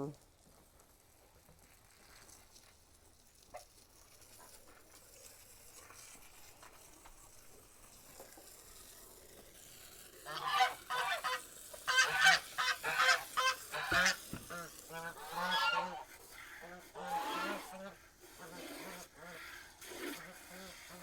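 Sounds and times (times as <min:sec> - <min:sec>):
poultry calling: 0:10.3 - 0:16.1, 0:17.0 - 0:17.9.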